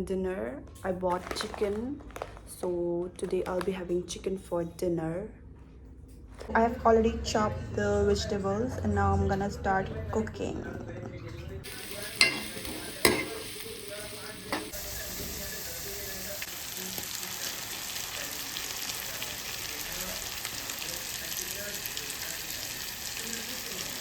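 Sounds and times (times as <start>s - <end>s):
food sizzling in a pan: 11.6s - 24.0s.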